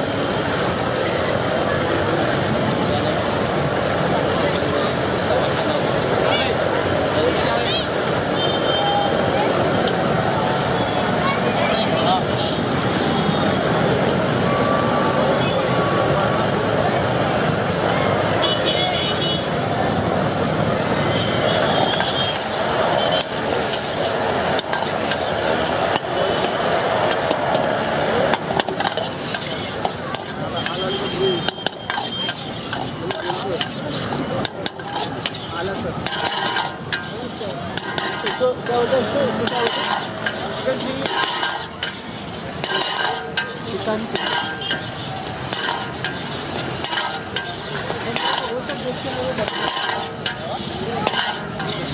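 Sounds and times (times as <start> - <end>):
gas burner roar: 0.0 - 11.3, 19.2 - 51.9
chicken sizzling in a pan: 16.2 - 51.9
ladle clanking against wok: 24.6 - 27.7, 28.3 - 30.8, 31.4 - 51.9.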